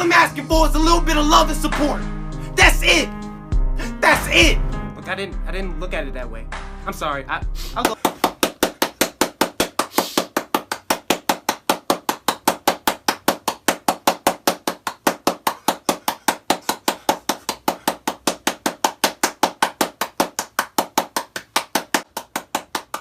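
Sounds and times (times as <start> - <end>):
rapid knocking: 7.9 - 23.0.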